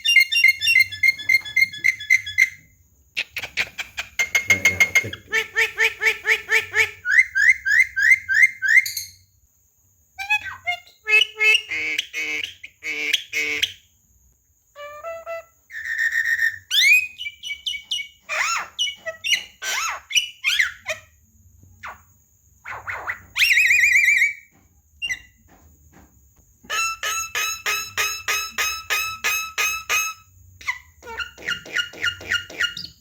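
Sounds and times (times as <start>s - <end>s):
bird singing whistles and chatter: 4.2s - 5.3s.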